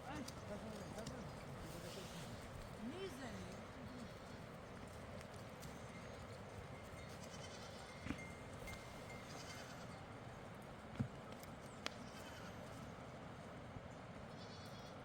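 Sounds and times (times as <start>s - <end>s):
faint livestock bleating: 7.2s - 8.0s, 9.2s - 10.1s, 12.0s - 12.9s, 14.3s - 15.0s.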